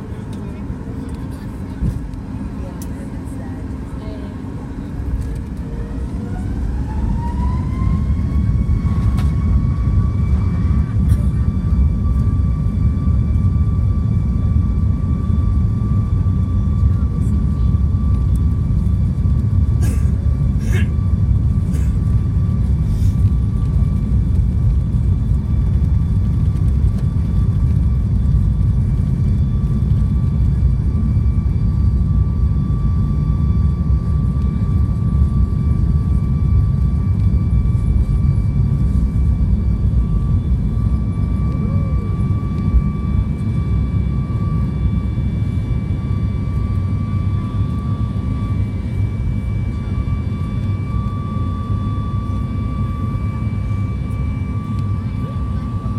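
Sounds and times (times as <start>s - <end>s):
jet engines rumbling inside cabin: 0.0s - 55.9s.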